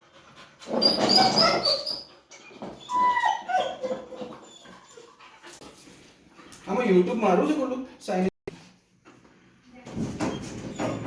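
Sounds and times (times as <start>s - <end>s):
puppies whining and yelping: 0.6s - 5.3s.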